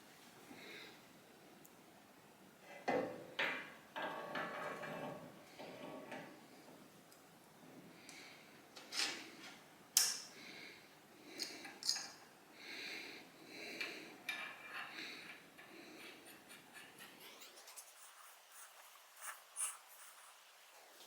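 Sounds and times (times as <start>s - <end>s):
rubbing and scraping: 15.7s - 21.0s.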